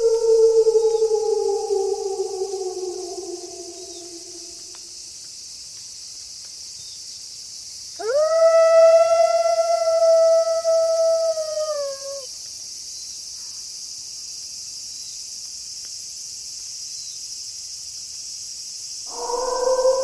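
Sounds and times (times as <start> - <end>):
wolf howling: 0.0 - 4.8, 8.0 - 12.3, 19.1 - 20.0
crickets chirping: 0.0 - 20.0.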